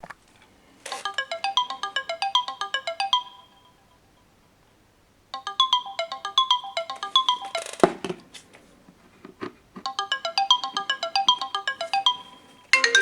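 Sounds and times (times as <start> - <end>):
smartphone ringtone: 0.9 - 4.0, 5.4 - 8.1, 9.9 - 13.0.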